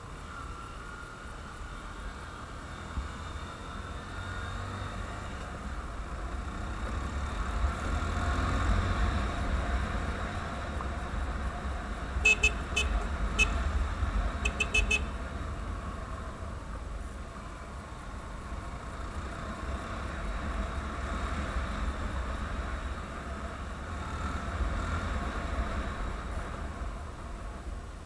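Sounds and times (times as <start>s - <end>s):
vehicle engine rumble: 0.0s - 28.0s
short horn toots: 12.2s - 13.6s, 14.4s - 15.2s.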